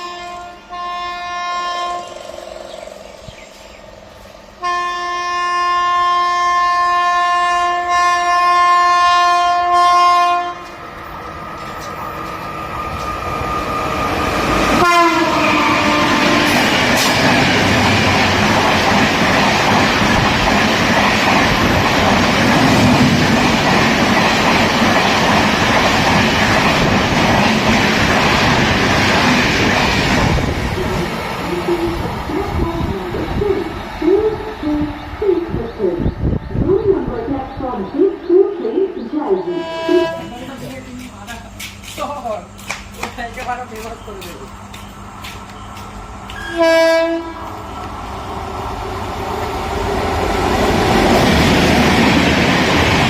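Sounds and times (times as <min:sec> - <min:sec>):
train horn blast: 0:00.0 - 0:02.2, 0:04.6 - 0:10.8, 0:14.7 - 0:16.8, 0:39.4 - 0:40.8, 0:46.4 - 0:47.5
train coaches rushing and clattering: 0:09.3 - 0:53.0.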